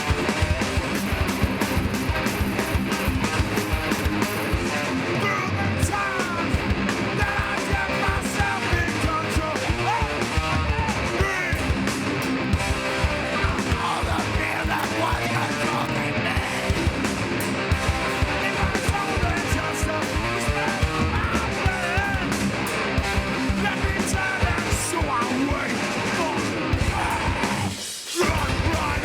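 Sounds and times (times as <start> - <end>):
distorted electric guitars: 0.0 - 29.0
fast pounding drums: 0.0 - 29.0
person yelling vocals: 7.2 - 11.7, 23.6 - 29.0.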